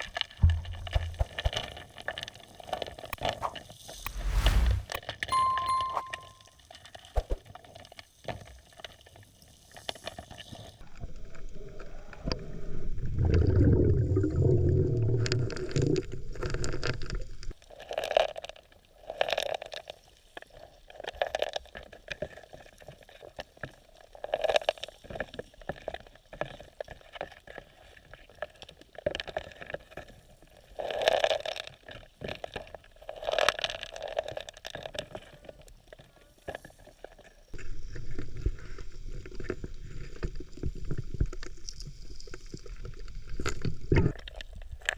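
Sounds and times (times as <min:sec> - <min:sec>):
scraping sounds: 0:03.9 - 0:05.0.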